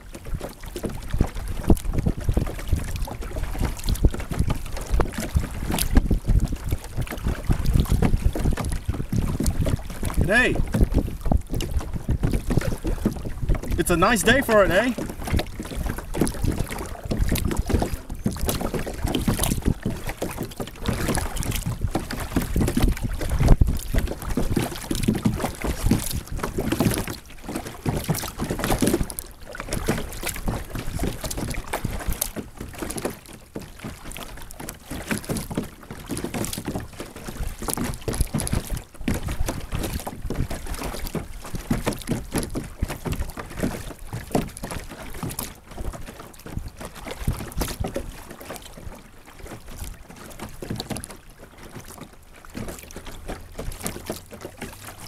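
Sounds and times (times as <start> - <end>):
water splashing around kayak: 0.0 - 55.0
wind buffeting microphone: 0.8 - 26.8.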